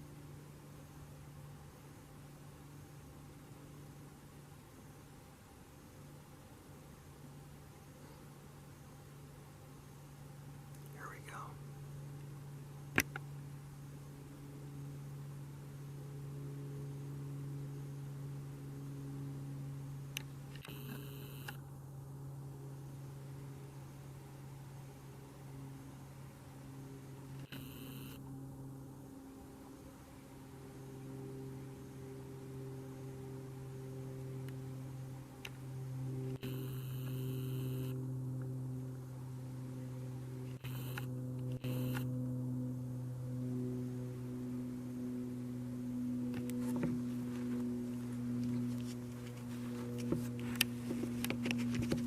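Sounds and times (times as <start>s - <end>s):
low electrical hum: 0.0s - 52.0s
sharp click: 40.6s - 42.1s.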